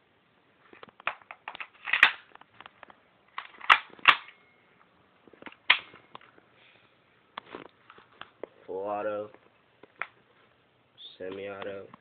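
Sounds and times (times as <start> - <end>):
gun parts clicking: 0.8 - 4.4, 5.4 - 6.3.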